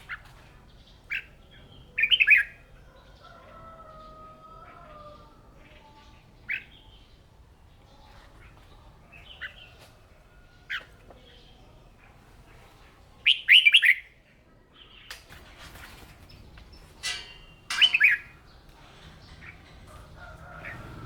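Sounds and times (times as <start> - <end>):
bird song notes: 0.0 - 4.1, 13.2 - 14.1, 16.2 - 21.0.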